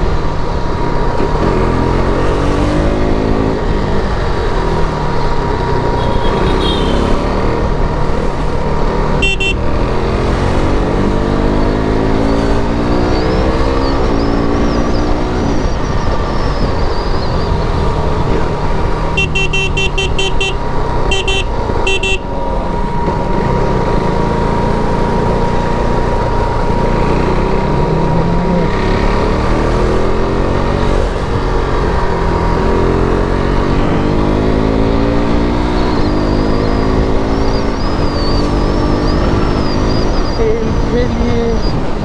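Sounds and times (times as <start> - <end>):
traffic: 0.0 - 42.0
motorcycle engine accelerating: 0.9 - 40.4
horn beeping: 6.0 - 7.2, 9.2 - 10.0, 19.1 - 22.4.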